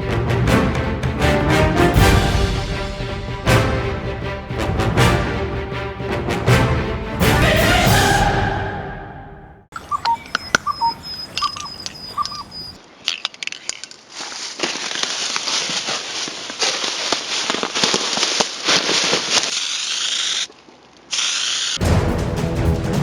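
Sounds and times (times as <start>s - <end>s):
short chirps and clicks: 9.8s - 13.9s.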